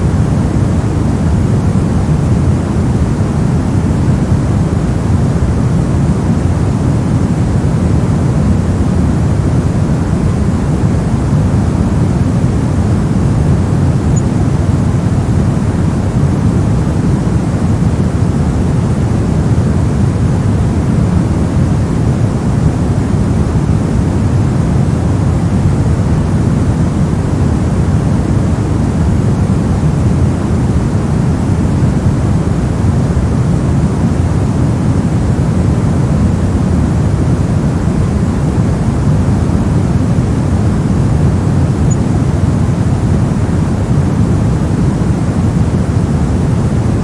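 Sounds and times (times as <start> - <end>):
electronic white noise: 0.0 - 47.0.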